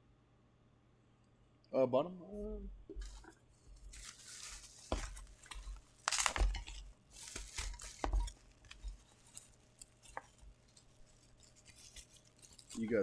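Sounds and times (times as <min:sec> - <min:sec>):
packaging rustling and tearing: 0:03.0 - 0:13.0.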